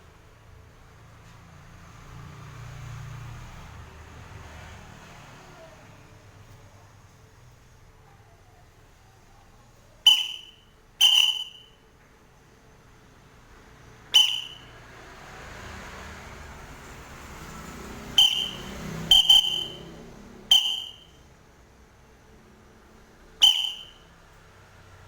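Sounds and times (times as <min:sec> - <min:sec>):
bird short sharp high calls: 0:10.1 - 0:11.7, 0:14.2 - 0:14.6, 0:18.2 - 0:19.9, 0:20.5 - 0:21.1, 0:23.4 - 0:24.0.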